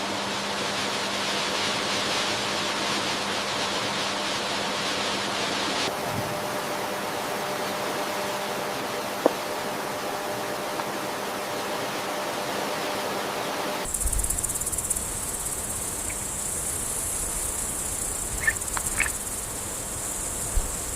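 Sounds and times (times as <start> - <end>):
high-pitched insect trill: 13.8 - 20.9
steady hiss: 13.8 - 20.9
short insect chirps: 13.9 - 20.9.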